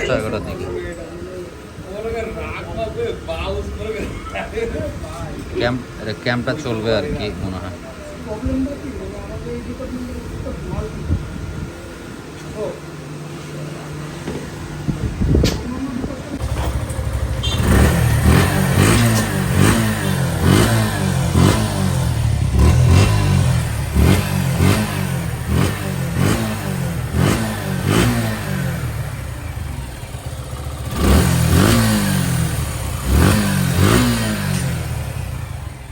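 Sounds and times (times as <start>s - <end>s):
motorcycle engine revving: 13.8s - 35.9s.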